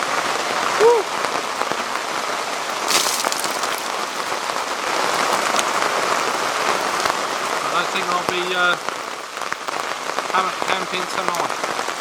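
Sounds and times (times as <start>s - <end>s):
close raindrop hits: 2.8s - 5.8s.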